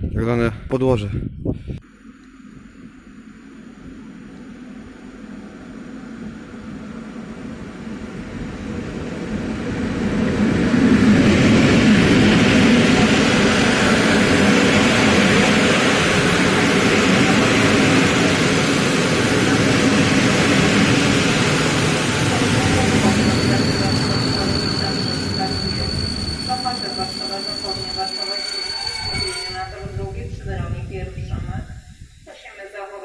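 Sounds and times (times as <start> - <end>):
train wheels rolling on rails: 3.8 - 30.8.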